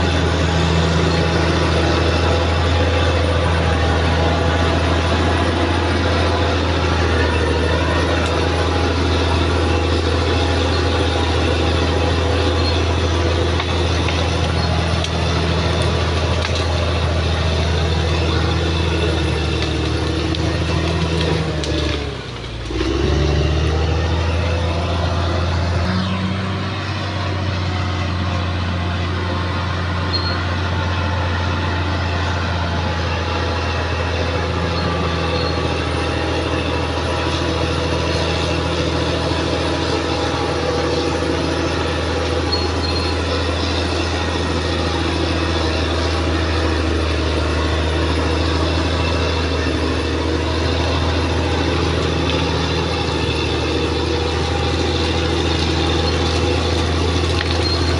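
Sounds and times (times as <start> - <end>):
bulldozer diesel engine drone: 0.0 - 57.9.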